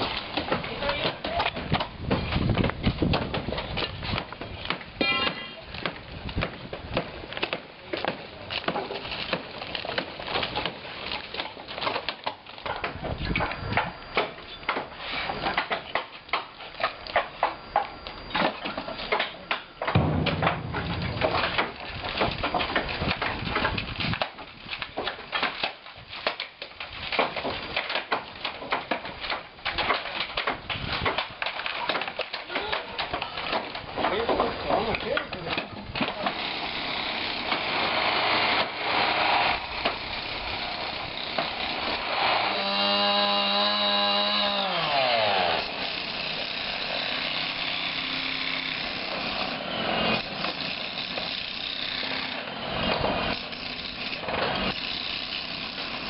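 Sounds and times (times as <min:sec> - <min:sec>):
demolition knocks and bangs: 0:00.0 - 0:16.5, 0:18.3 - 0:36.4
low rumble: 0:20.0 - 0:22.2.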